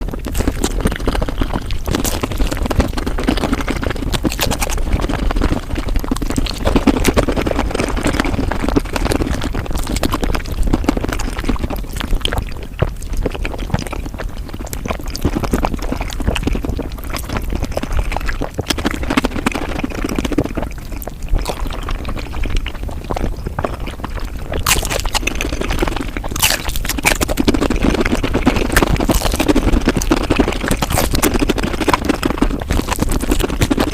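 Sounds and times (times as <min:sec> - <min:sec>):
fast chewing and slurping: 0:00.0 - 0:33.9.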